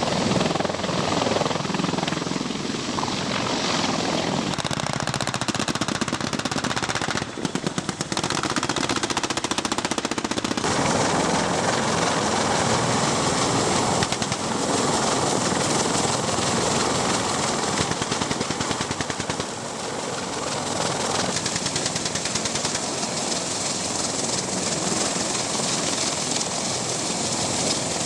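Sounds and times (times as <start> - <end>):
helicopters: 0.0 - 28.0
rapid automatic gunfire: 4.6 - 10.8, 17.6 - 19.6.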